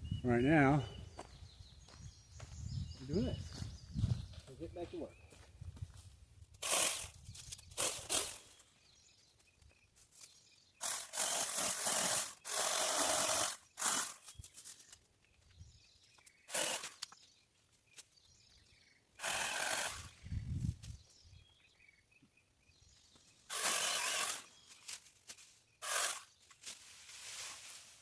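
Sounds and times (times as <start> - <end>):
rasping cutting of branches: 6.6 - 8.7, 10.2 - 15.0, 16.2 - 17.3, 19.2 - 20.2, 23.4 - 28.0
leafy rustling: 23.8 - 28.0.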